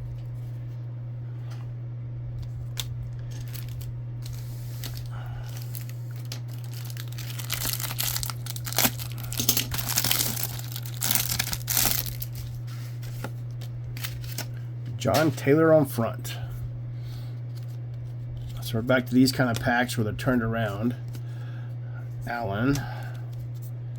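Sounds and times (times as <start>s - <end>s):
low hum: 0.0s - 23.9s
card pack wrapper tearing: 2.4s - 14.6s.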